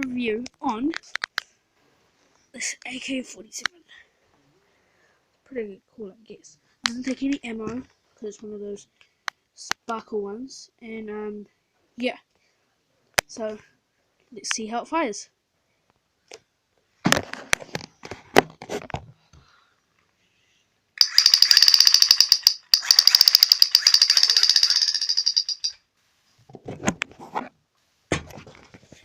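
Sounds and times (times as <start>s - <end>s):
handling clicks and knocks: 21.0s - 25.8s
toy gun rapid clicking: 21.0s - 25.8s.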